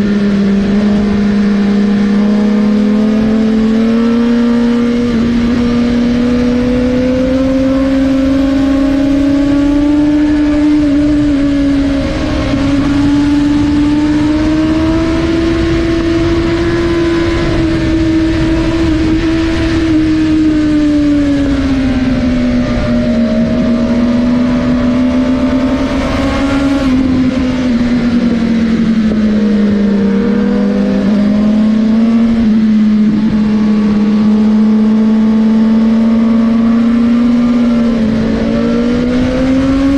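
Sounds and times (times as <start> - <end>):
motorcycle engine at high revs: 0.0 - 39.9
wind rushing: 4.6 - 35.0.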